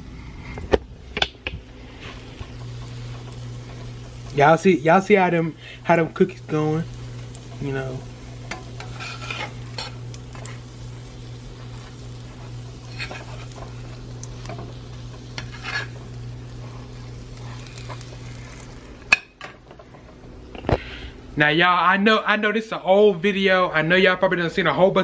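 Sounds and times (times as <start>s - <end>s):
steady low hum: 0.0s - 21.5s
cookies sizzling in hot oil: 1.9s - 19.1s
metal spatula scraping pan: 8.4s - 10.7s, 11.6s - 18.1s.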